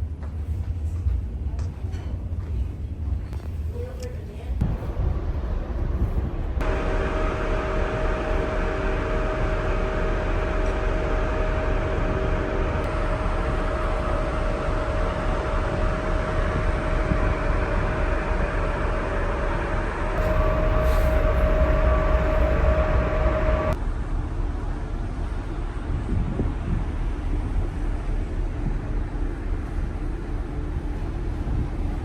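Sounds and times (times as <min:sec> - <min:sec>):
vehicle interior rumble and hum: 0:10.6 - 0:23.9.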